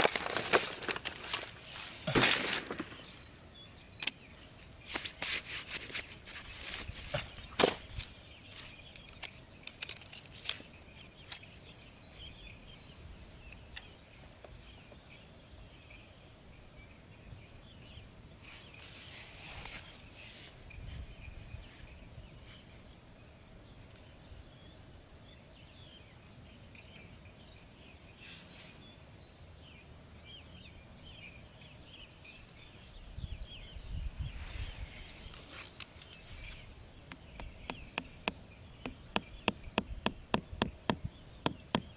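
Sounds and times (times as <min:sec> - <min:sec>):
faint high chirping: 0:10.5 - 0:40.0.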